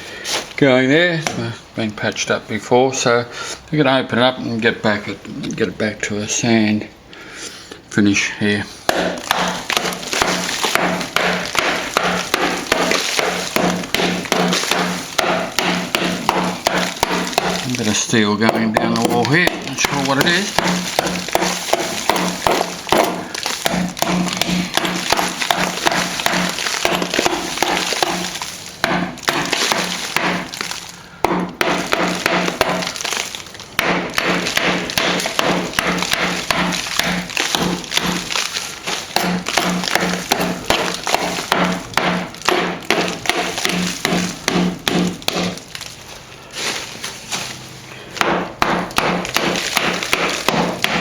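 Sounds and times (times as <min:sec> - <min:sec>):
hammer and chisel chipping plaster: 0:08.9 - 0:45.9, 0:48.0 - 0:51.0.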